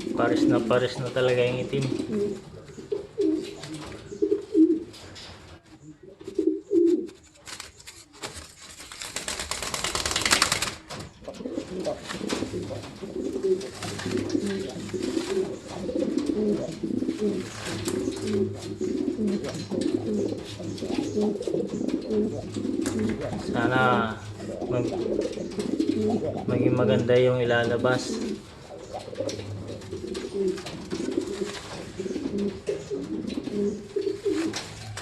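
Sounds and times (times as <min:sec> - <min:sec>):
pigeons cooing: 0:00.0 - 0:07.2, 0:10.9 - 0:35.0
rustling noise: 0:00.0 - 0:26.5, 0:27.1 - 0:35.0.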